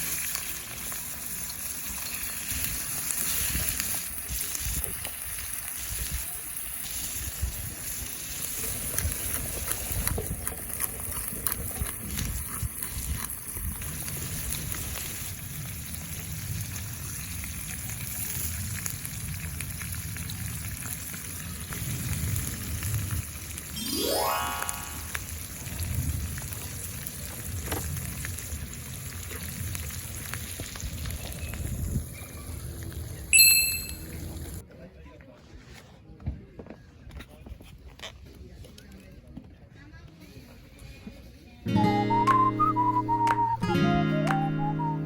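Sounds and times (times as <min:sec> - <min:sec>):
food sizzling in a pan: 0:00.0 - 0:08.8, 0:14.1 - 0:32.2
short rising tone: 0:23.8 - 0:25.2.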